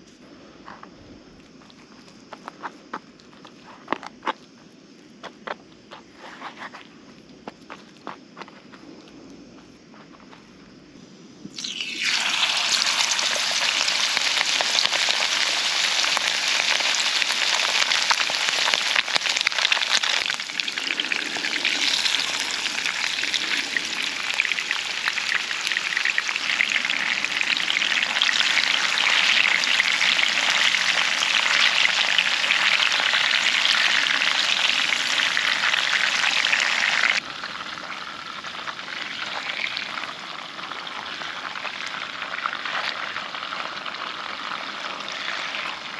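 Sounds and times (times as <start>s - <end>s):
food sizzling in a pan: 11.5s - 45.9s.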